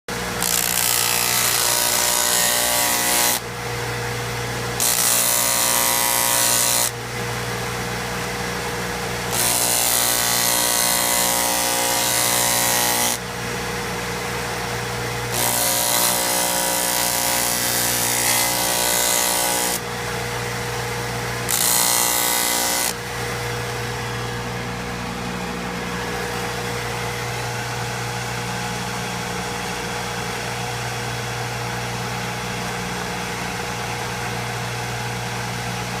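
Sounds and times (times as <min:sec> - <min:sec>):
sander motor running: 0:00.1 - 0:03.4, 0:04.8 - 0:30.4
stone grinding on abrasive: 0:00.4 - 0:03.4, 0:04.8 - 0:06.9, 0:09.3 - 0:13.2, 0:15.3 - 0:19.8, 0:21.5 - 0:23.0.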